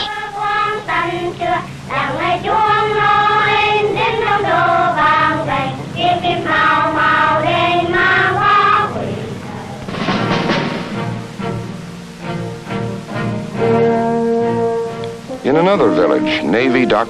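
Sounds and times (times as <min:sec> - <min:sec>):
children singing a slow tune: 0:00.0 - 0:10.0.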